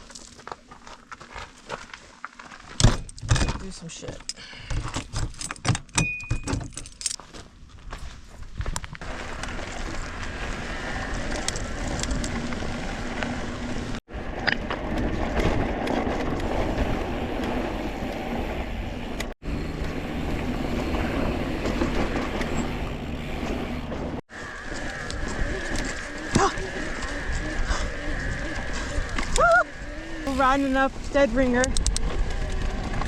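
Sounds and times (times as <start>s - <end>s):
bike tyre rumble and rattle: 6.8s - 33.0s.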